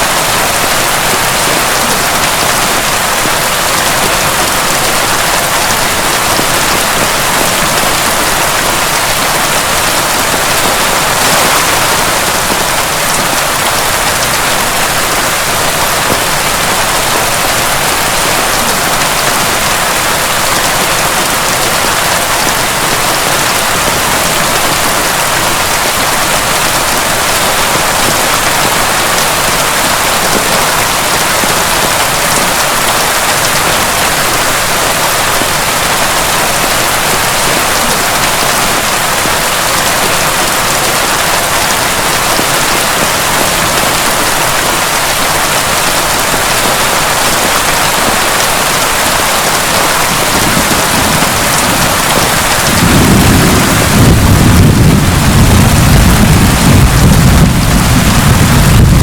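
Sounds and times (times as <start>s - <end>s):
heavy rain falling: 0.0s - 59.0s
rolling thunder: 50.2s - 59.0s.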